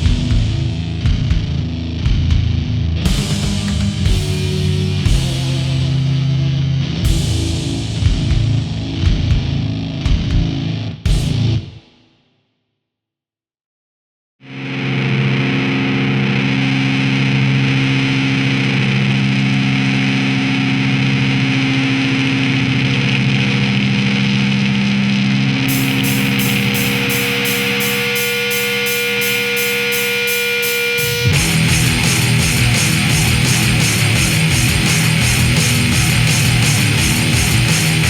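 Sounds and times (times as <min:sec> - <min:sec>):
distorted electric guitar music: 0:00.0 - 0:11.8, 0:14.5 - 0:38.0
fast ticking beat: 0:31.3 - 0:38.0.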